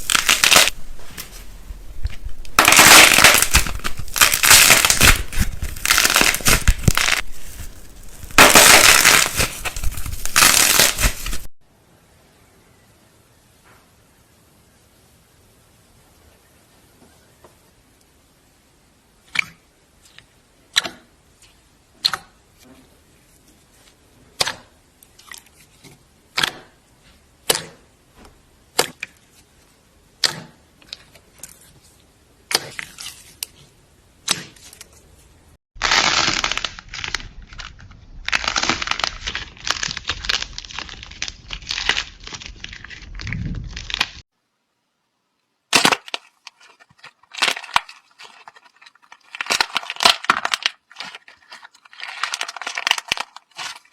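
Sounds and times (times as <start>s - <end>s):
crackling and crunching: 0.0s - 11.6s, 35.8s - 44.3s, 45.7s - 53.9s.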